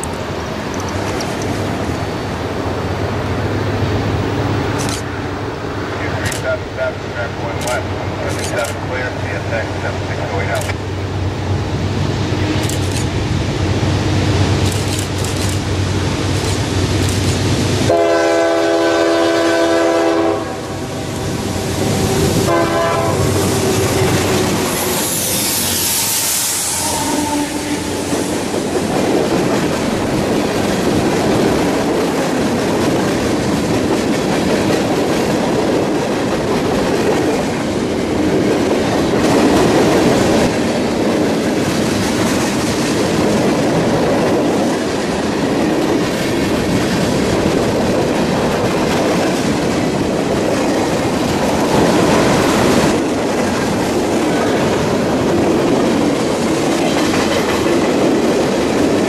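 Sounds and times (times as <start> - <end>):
freight cars clickety-clack: 0.0 - 3.5, 4.3 - 11.1, 14.3 - 17.8, 26.9 - 59.0
locomotive passing rush: 0.0 - 59.0
train horn blasts: 17.9 - 26.0, 26.6 - 28.1.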